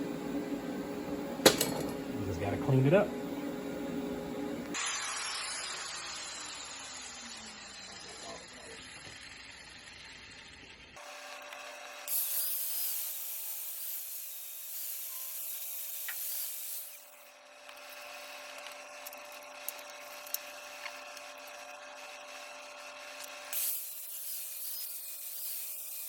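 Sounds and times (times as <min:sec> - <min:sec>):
steady hum: 0:00.0 - 0:04.8
plasma cutter hissing: 0:04.7 - 0:10.6, 0:12.0 - 0:17.3, 0:23.4 - 0:26.0.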